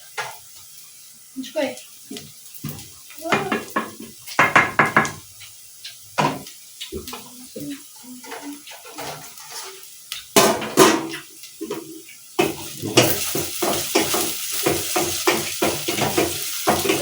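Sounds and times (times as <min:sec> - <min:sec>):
food sizzling: 0:00.0 - 0:17.0
loud knocks: 0:03.4 - 0:05.2
metal spoon stirring and scraping pot: 0:08.2 - 0:09.9, 0:11.6 - 0:17.0.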